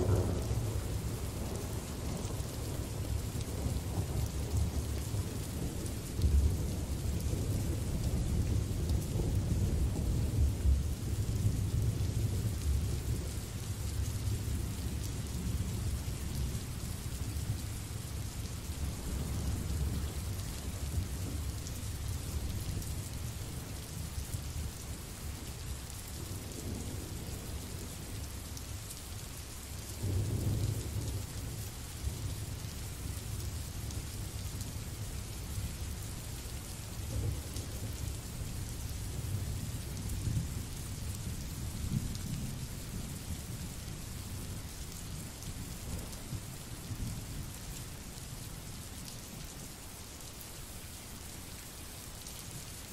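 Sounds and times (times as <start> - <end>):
low rolling thunder: 0.0 - 13.4, 30.0 - 32.5
steady rain hiss: 0.0 - 52.9.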